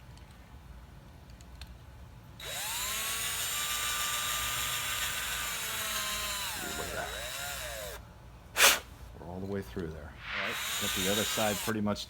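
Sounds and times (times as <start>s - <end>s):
electric drill whining: 2.4s - 8.0s, 10.4s - 11.8s.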